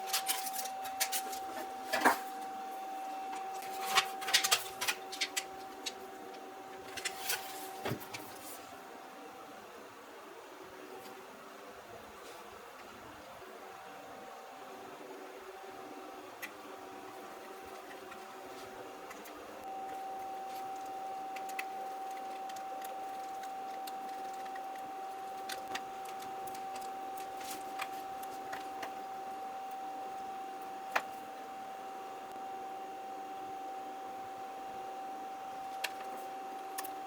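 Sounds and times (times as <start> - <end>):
machine whine: 10.7 - 37.0.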